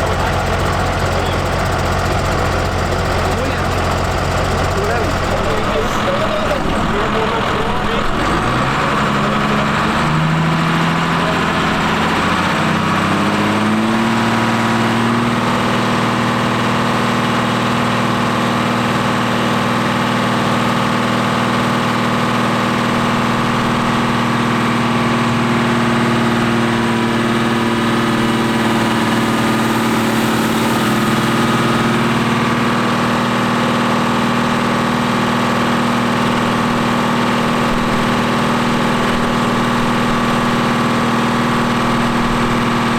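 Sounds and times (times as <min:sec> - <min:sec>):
tractor diesel engine revving: 0:00.0 - 0:42.9.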